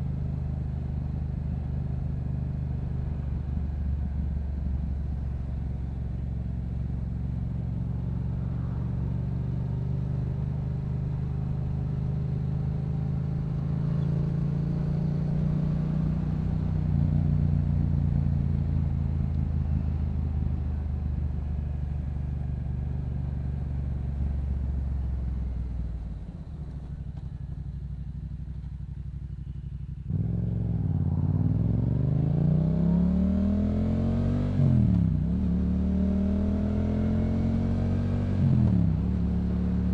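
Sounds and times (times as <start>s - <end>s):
motorcycle engine revving: 2.9s - 20.9s, 28.2s - 39.9s.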